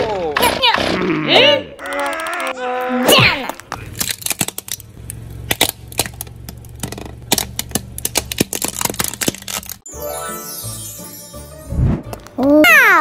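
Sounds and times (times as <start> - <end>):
objects cracking under car tyre: 3.4 - 9.9
car engine hum: 3.6 - 9.9.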